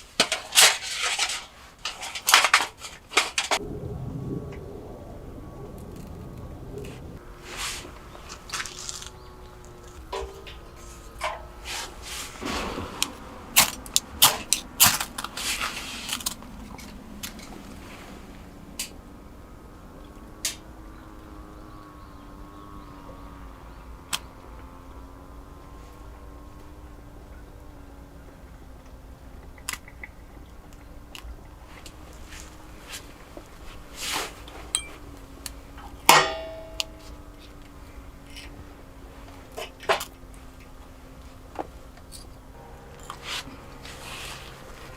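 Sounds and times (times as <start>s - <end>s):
faint steady hum: 0.0s - 44.9s
sharp ringing clink: 34.8s - 35.1s.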